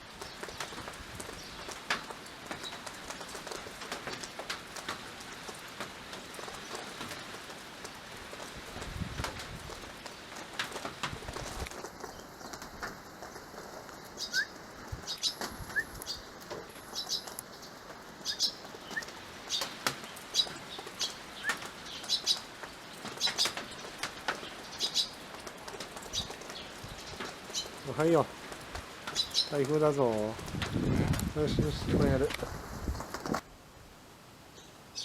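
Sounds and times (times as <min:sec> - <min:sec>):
wings fluttering: 0:00.2 - 0:33.4
sparrows chirping: 0:13.3 - 0:28.3, 0:28.9 - 0:30.3, 0:34.6 - 0:35.0.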